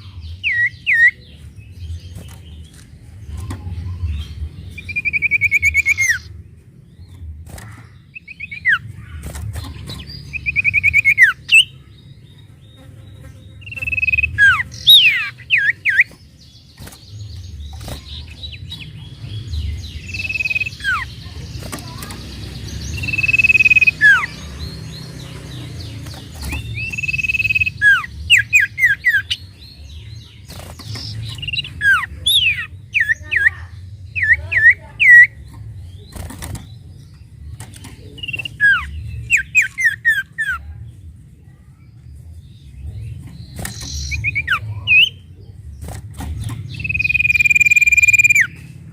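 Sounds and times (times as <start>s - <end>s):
bird singing whistled phrases: 13.7s - 16.1s, 23.0s - 24.3s, 26.8s - 29.4s, 46.8s - 48.6s.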